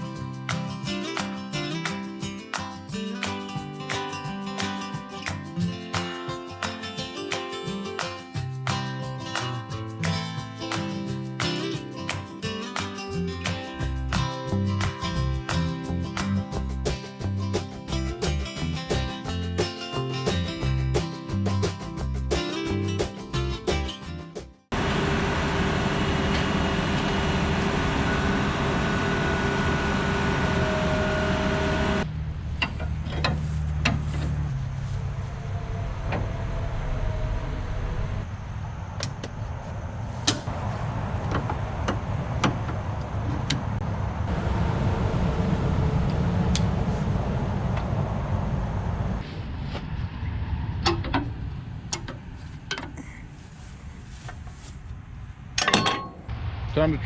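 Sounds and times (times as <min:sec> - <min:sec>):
combine harvester engine running: 0:24.8 - 0:52.4
metal clanks and knocks: 0:55.6 - 0:56.3.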